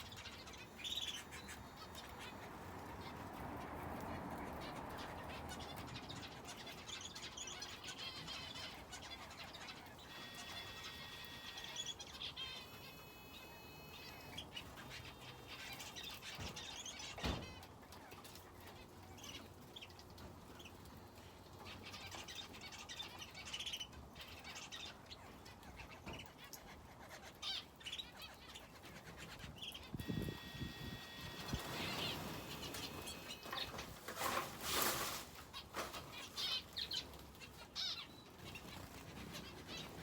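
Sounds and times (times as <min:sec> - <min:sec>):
finches and canary chirping: 0:00.0 - 0:34.0, 0:35.5 - 0:40.0
wing flutter: 0:30.0 - 0:36.6.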